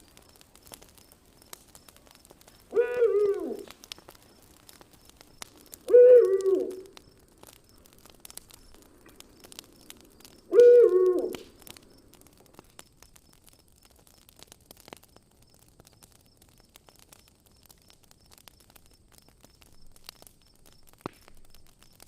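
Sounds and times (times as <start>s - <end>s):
campfire crackling and popping: 0.0s - 22.0s
owl hooting: 2.7s - 3.7s, 5.8s - 6.9s, 10.5s - 11.4s.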